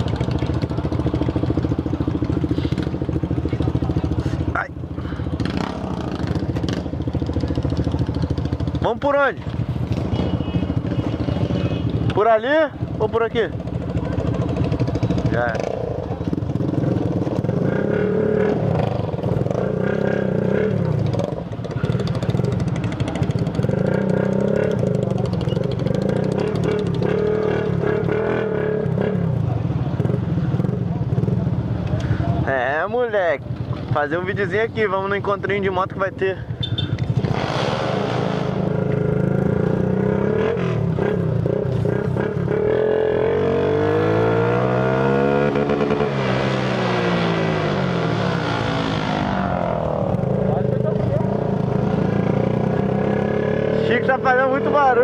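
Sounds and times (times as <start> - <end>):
small motorcycle engine running: 0.0 - 31.6.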